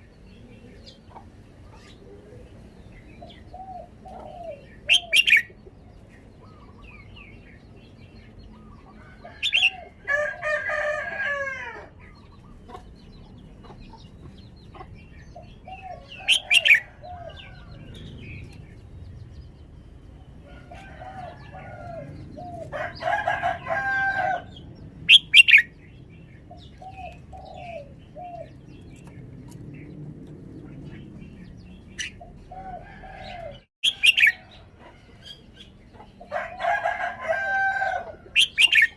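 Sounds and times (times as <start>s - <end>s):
bulbul singing: 24.4s - 32.8s.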